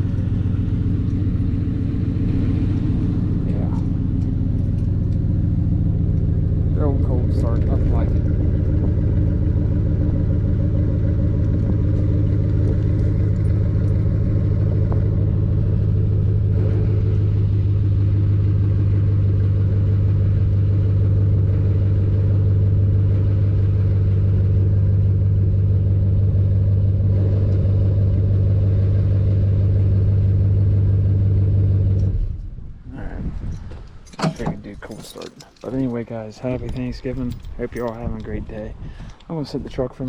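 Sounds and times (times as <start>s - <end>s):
pickup truck engine idling: 0.0s - 33.6s.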